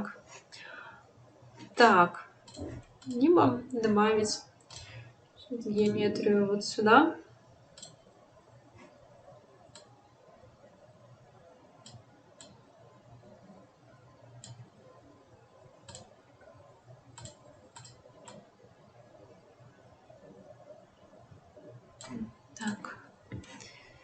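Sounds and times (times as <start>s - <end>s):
quiet low hum: 0.0s - 24.0s
faint computer mouse clicks: 7.8s - 8.0s.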